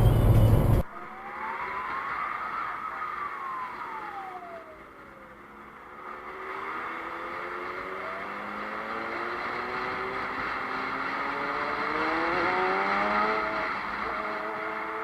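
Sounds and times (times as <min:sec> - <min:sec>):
whine rising and falling: 0:00.0 - 0:12.0
car engine: 0:00.0 - 0:15.0
road noise: 0:00.0 - 0:15.0.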